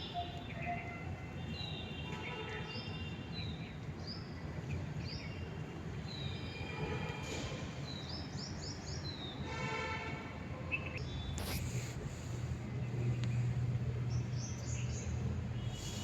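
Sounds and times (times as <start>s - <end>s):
small birds chirping: 12.8s - 16.0s.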